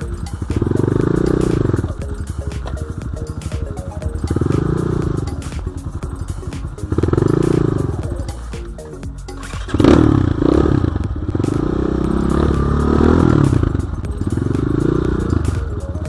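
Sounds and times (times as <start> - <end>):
dirt bike engine revving: 9.5 - 15.6.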